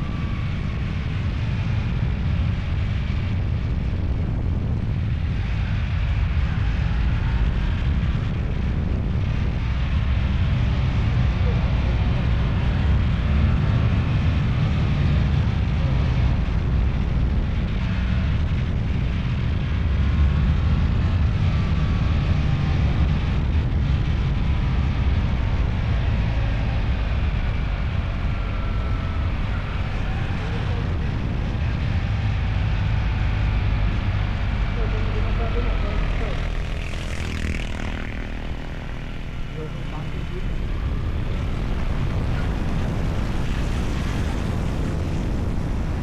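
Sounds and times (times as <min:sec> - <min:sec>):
vehicle rumble: 0:00.0 - 0:46.0
wind on microphone: 0:00.0 - 0:46.0.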